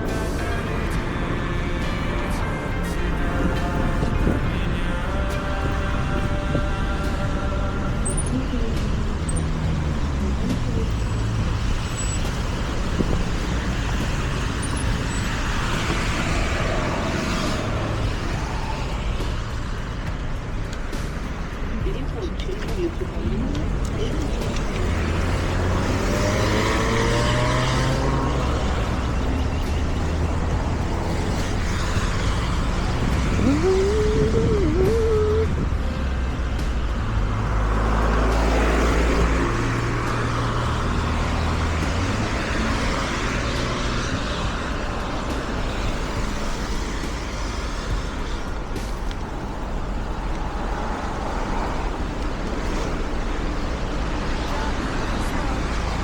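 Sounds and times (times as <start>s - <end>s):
road traffic rumble: 0.0s - 56.0s
rising engine note: 24.4s - 46.9s
rising tone: 25.0s - 47.2s.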